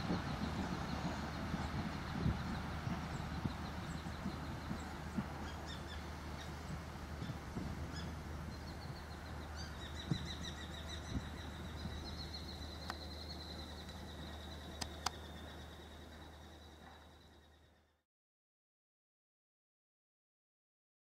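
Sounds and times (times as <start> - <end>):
steady low rumble: 0.0 - 17.9
bird trilling: 3.7 - 17.6
sharp clicks: 12.8 - 13.0, 14.8 - 15.2.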